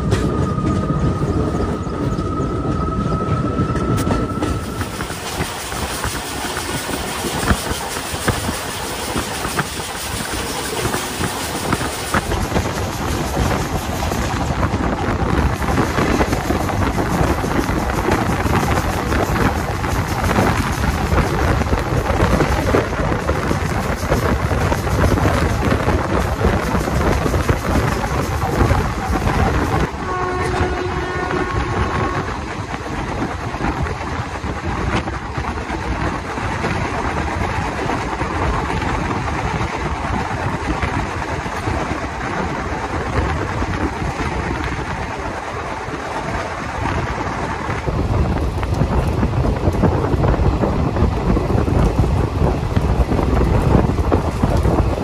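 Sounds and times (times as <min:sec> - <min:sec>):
train wheels rumbling on rails: 0:00.0 - 0:55.0
wind rushing: 0:00.0 - 0:55.0
train horn: 0:29.8 - 0:32.5.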